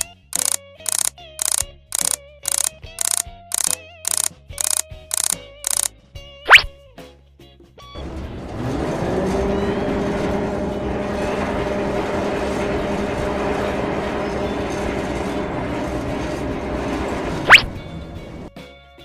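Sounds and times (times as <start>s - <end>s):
motor running with hum: 0.0s - 5.9s, 8.0s - 18.5s
noisy rumble: 8.0s - 18.5s.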